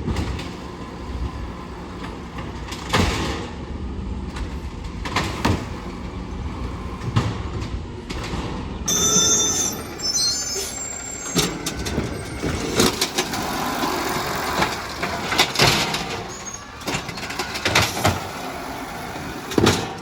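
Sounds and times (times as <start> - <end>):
garbage truck engine running: 0.0 - 20.0
high squeal: 8.9 - 17.4.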